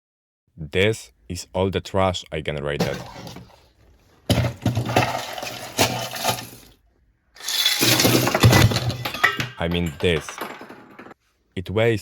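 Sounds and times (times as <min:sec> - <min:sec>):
plastic scraps clattering: 0:02.8 - 0:06.8, 0:07.4 - 0:11.2.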